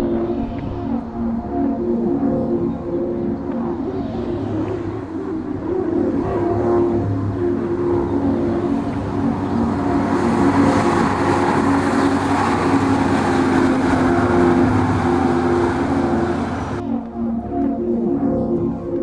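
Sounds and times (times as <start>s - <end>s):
truck diesel engine running: 4.4s - 16.8s.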